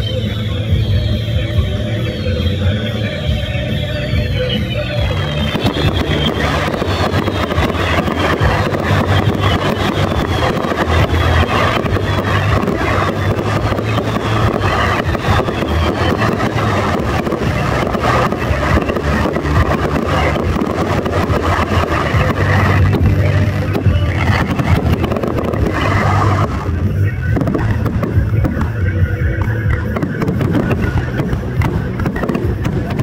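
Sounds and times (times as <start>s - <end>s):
crackling firework stars: 0.0s - 33.0s
firework shell bursts: 0.0s - 33.0s
steady rumble: 0.0s - 33.0s.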